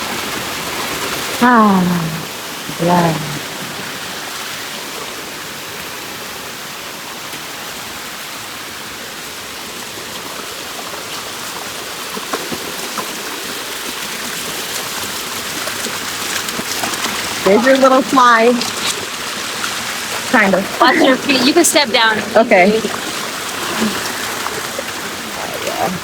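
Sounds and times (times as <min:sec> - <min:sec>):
rushing water of waterfall: 0:00.0 - 0:26.0.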